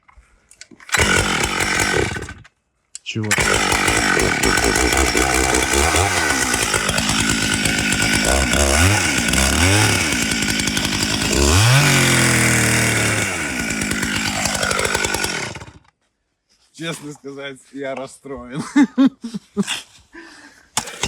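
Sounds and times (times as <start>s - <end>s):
chainsaw engine revving: 0.9s - 2.4s, 3.3s - 15.9s, 20.8s - 21.0s.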